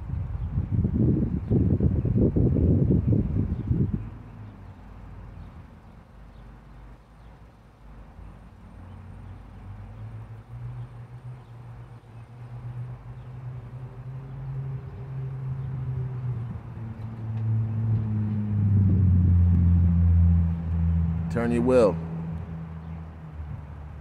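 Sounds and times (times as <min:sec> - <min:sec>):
car engine running low: 0:08.8 - 0:24.0.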